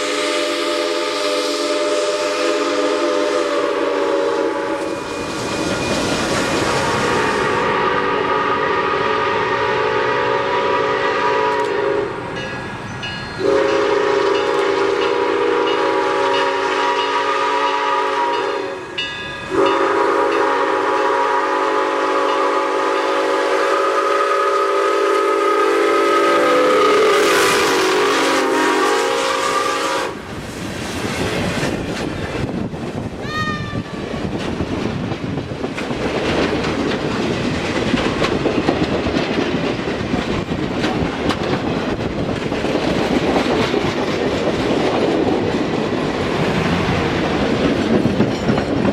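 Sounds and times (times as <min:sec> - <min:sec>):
steam locomotive whistle: 0:00.0 - 0:12.4, 0:13.4 - 0:30.3
train wheels rumbling and clattering: 0:03.1 - 0:24.9, 0:25.6 - 0:48.9.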